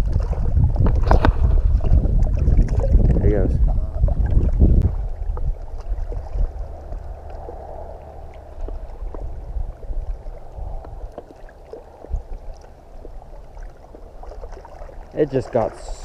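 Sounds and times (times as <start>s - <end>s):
wind rumbling on microphone: 0.0s - 16.0s
waves lapping on rocks: 4.4s - 16.0s.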